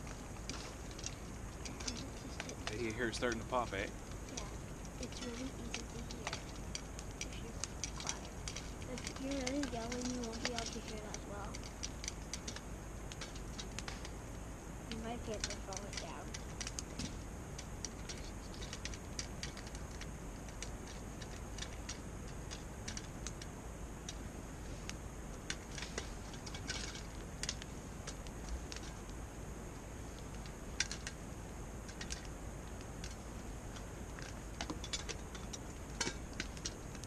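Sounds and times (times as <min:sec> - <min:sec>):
popcorn popping: 0:00.0 - 0:14.1, 0:14.9 - 0:23.4.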